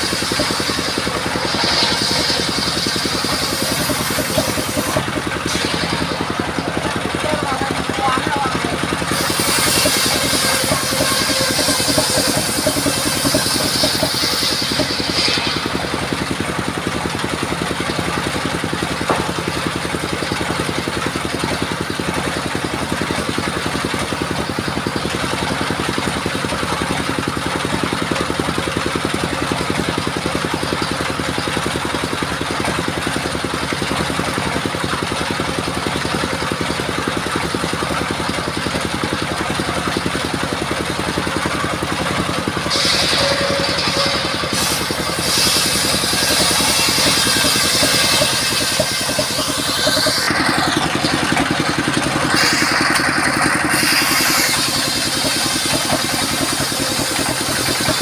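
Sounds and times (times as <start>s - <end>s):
saw blade cutting log: 0.0s - 21.9s, 37.2s - 58.0s
sawmill engine running: 0.0s - 58.0s.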